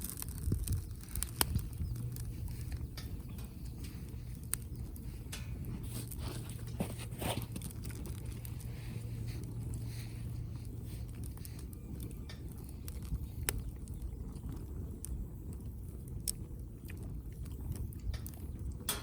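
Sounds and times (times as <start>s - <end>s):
firewood crackling: 0.0s - 19.0s
low steady rumble: 0.0s - 19.0s
sharp pops of fire: 0.0s - 19.0s.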